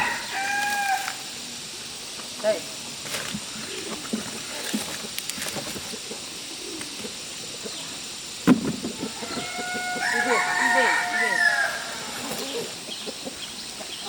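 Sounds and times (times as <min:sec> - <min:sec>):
rooster crowing: 0:00.0 - 0:01.3, 0:09.0 - 0:12.2.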